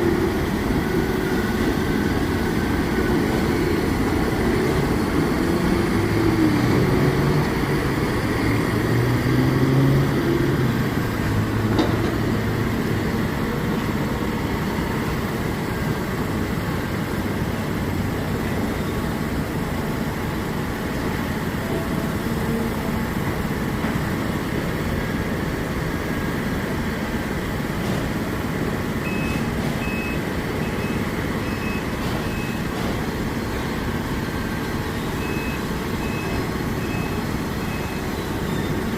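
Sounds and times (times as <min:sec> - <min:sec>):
heavy diesel engines running: 0:00.0 - 0:38.9
backup alarm beeping: 0:29.0 - 0:32.8, 0:35.0 - 0:38.8.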